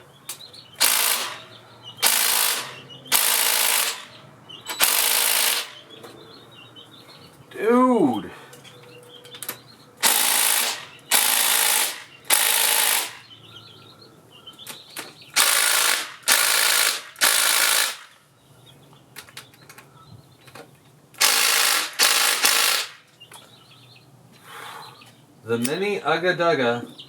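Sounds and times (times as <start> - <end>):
impact wrench hammering: 0.8 - 5.8, 10.0 - 13.3, 15.4 - 18.1, 21.2 - 23.0.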